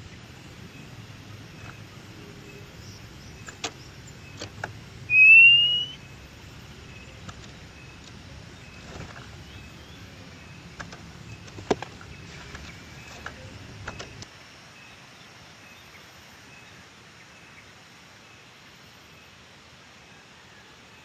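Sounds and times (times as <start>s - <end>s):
outdoor background hum: 0.0s - 21.0s
bird rising whistle: 5.1s - 6.0s.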